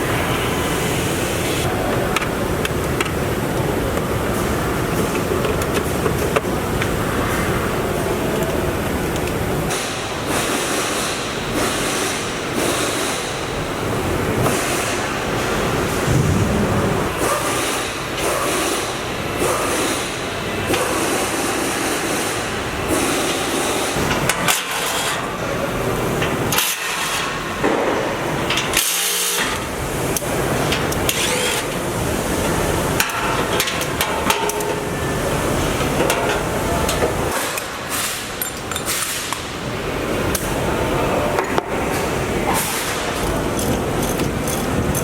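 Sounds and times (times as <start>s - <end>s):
shop background noise: 0.0s - 45.0s
metal tools clanking: 38.4s - 39.4s, 43.3s - 45.0s.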